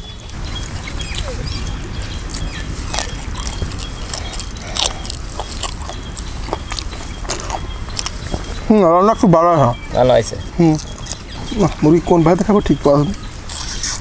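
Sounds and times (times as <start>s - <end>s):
wet chewing and lip-smacking: 0.0s - 8.9s, 10.6s - 12.0s, 13.1s - 14.0s.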